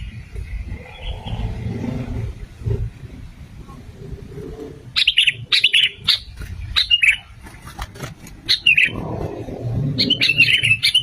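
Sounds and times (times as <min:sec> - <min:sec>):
bird chirping: 0:00.0 - 0:02.1, 0:04.9 - 0:07.4, 0:08.4 - 0:09.2, 0:09.9 - 0:11.0.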